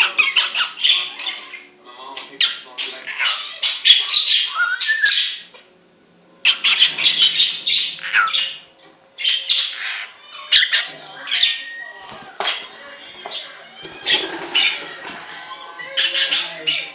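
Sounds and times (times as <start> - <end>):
cockatiel chattering and singing: 6.4 - 8.6, 9.2 - 12.6.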